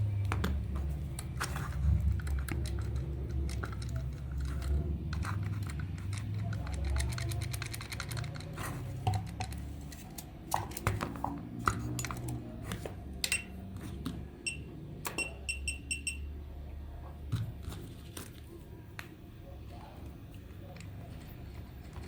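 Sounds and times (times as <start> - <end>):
parts clicking and knocking: 0.2 - 13.5
short high beeps: 14.5 - 16.3.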